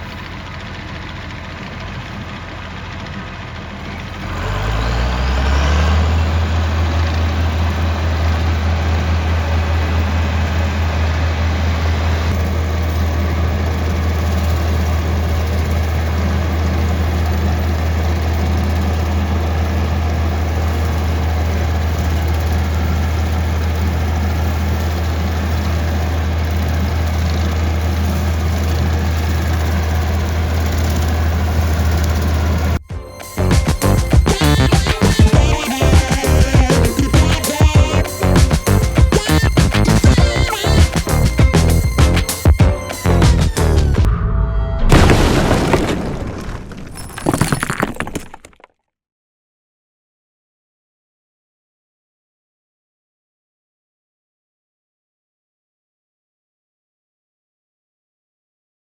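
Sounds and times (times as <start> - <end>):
diesel tractor engine droning: 0.0 - 46.7.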